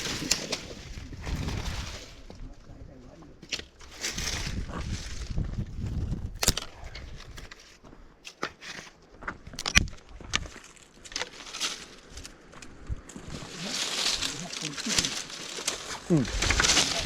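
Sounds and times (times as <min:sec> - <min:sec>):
wood fire crackling: 0:09.6 - 0:17.0.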